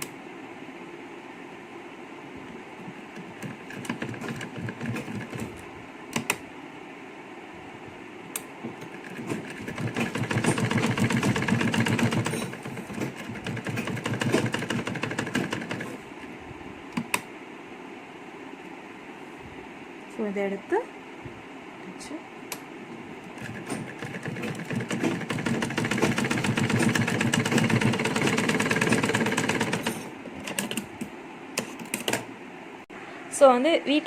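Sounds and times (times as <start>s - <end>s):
sewing machine stitching: 3.1s - 5.6s, 8.7s - 16.1s, 23.2s - 30.9s.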